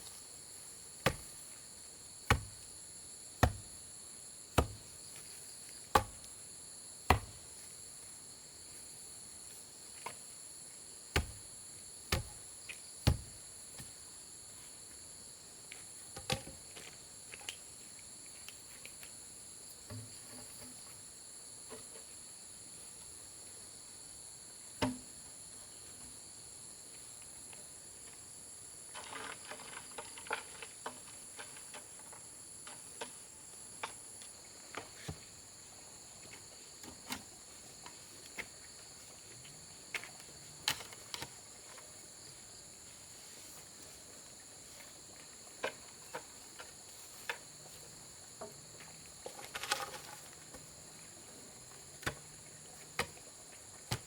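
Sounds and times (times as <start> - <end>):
insects chirring: 0.0 - 54.0
tool striking wood: 2.3 - 2.5, 3.4 - 3.7, 4.6 - 4.8, 5.9 - 6.2, 7.1 - 7.4, 12.1 - 12.4.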